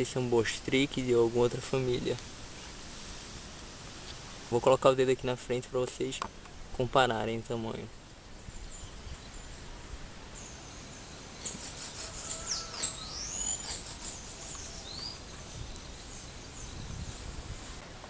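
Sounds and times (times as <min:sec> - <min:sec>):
low background hiss: 0:00.0 - 0:18.0
birds singing whistled notes: 0:08.3 - 0:17.8.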